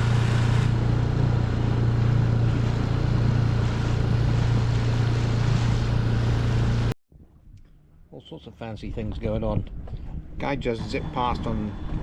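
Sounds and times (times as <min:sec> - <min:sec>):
outboard motor droning: 0:00.0 - 0:06.9, 0:09.8 - 0:12.0.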